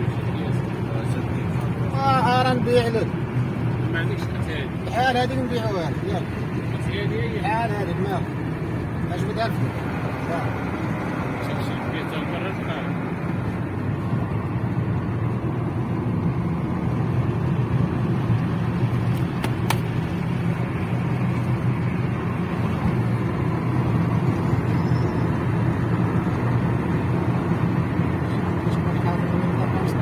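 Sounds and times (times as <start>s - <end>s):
vehicle engine and road drone: 0.0s - 30.0s.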